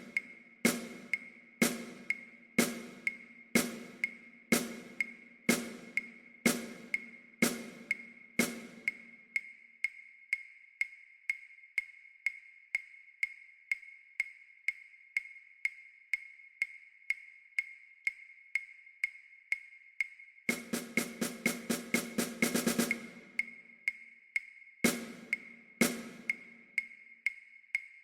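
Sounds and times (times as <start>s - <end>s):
snare drum strokes: 0.0s - 8.9s, 20.5s - 23.4s, 24.9s - 26.4s
metronome clicking: 0.0s - 28.0s.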